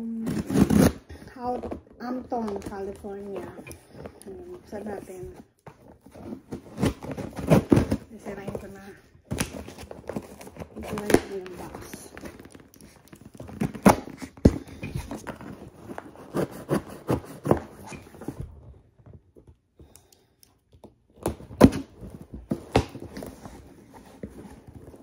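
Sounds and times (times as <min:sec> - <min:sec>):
cardboard box being torn open: 0:00.0 - 0:01.2.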